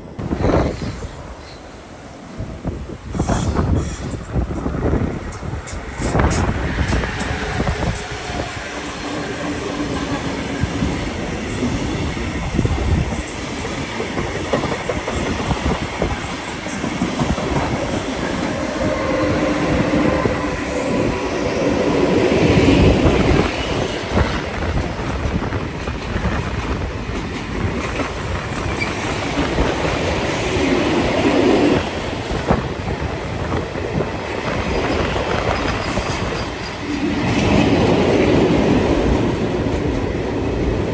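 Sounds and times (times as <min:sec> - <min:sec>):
train wheels rumbling and clattering: 0:02.5 - 0:40.9
high wheel squeal: 0:27.5 - 0:31.4.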